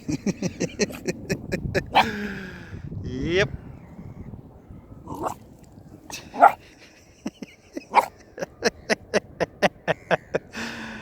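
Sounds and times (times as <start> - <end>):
puppy barking: 5.1 - 5.4, 6.4 - 6.6, 7.9 - 8.1.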